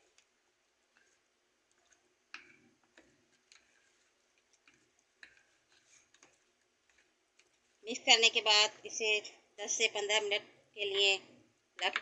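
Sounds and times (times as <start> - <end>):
spoon scraping a bowl: 3.3 - 7.1.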